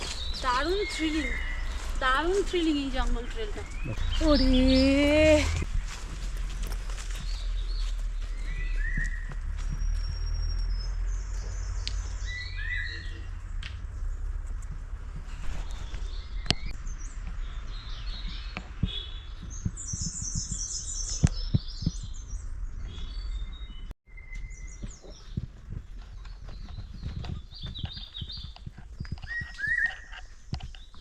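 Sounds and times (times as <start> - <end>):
steady low rumble: 0.0 - 23.9
birds chirping: 0.0 - 31.0.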